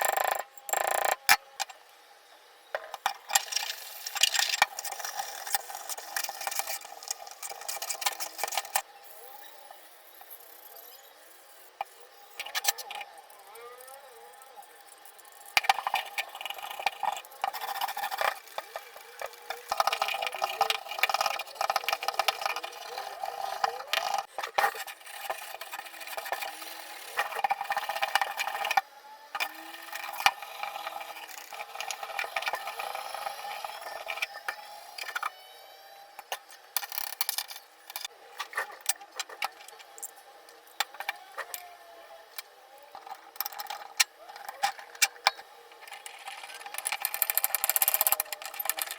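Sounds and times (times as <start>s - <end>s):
small hard parts clicking and rattling: 0.0s - 1.8s, 2.8s - 8.8s, 11.8s - 28.8s, 42.3s - 48.9s.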